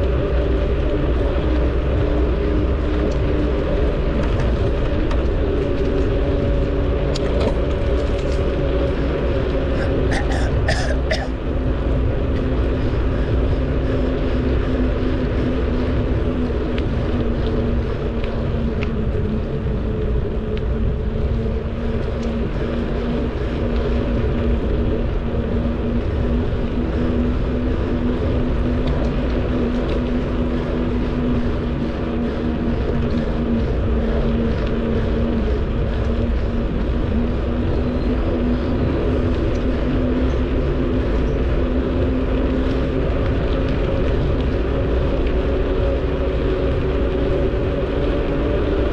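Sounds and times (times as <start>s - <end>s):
bicycle road noise: 0.0s - 48.9s
steady low hum: 0.0s - 48.9s
wind rushing over microphone: 0.0s - 48.9s.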